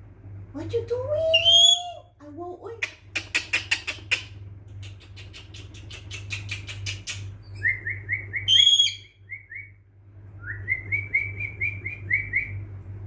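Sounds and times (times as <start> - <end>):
parrot chirping: 1.3 - 2.1, 3.1 - 9.7
parrot whistle: 1.4 - 2.0, 7.6 - 9.7
parrot clicking: 2.8 - 7.3.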